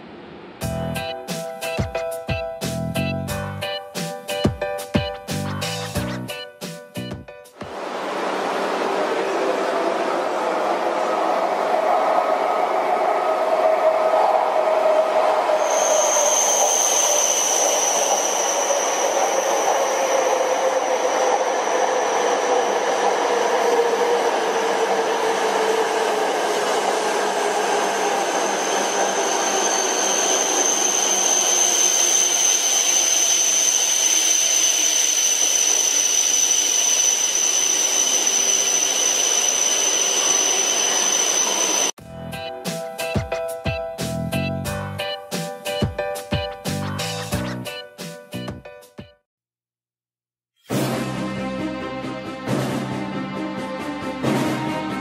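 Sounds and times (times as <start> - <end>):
rush of air and rail noise: 0.0 - 1.8, 7.6 - 42.0
high-pitched train whine: 7.6 - 43.1.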